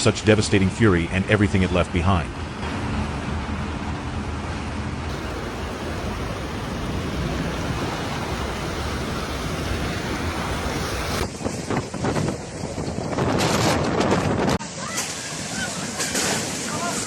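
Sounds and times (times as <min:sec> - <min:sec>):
surging water: 0:05.1 - 0:11.3
wind buffeting microphone: 0:05.1 - 0:14.5
storm wind: 0:05.1 - 0:14.6.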